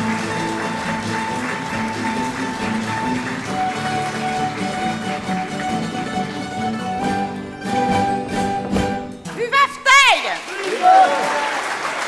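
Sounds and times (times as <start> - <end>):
folk band plucked strings: 0.0 - 10.2
person shouting: 9.4 - 11.3.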